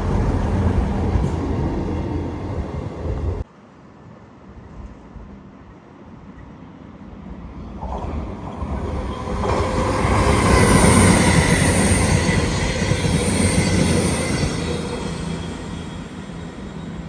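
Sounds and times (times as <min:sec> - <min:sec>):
train rumbling past: 0:00.0 - 0:03.5, 0:04.7 - 0:17.0
high wheel squeal: 0:09.3 - 0:17.0.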